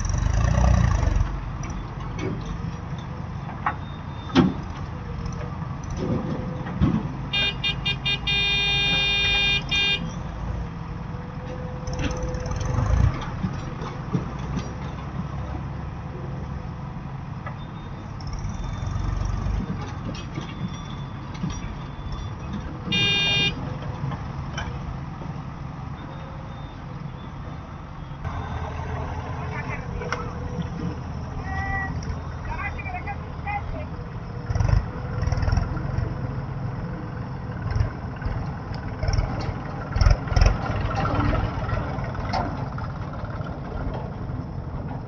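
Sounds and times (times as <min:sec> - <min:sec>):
heavy diesel machinery running: 0:00.0 - 0:45.0
vehicle horn tooting: 0:07.3 - 0:10.2, 0:22.9 - 0:23.6.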